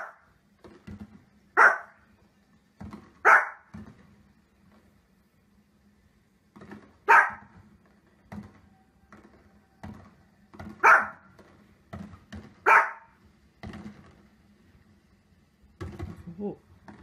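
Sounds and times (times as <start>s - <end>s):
small dog barking: 0.0s - 0.2s, 1.6s - 2.0s, 3.2s - 3.7s, 7.0s - 7.5s, 10.8s - 11.3s, 12.6s - 13.2s.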